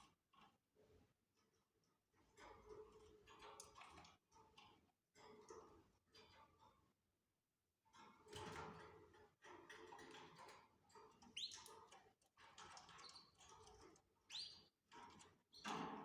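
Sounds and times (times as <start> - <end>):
canaries chirping: 14.3 - 14.7.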